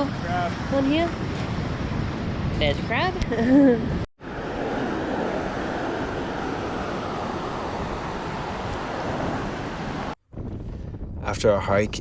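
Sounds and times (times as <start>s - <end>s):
wind on microphone: 0.0s - 12.0s
ocean surf washing on beach: 4.2s - 10.2s.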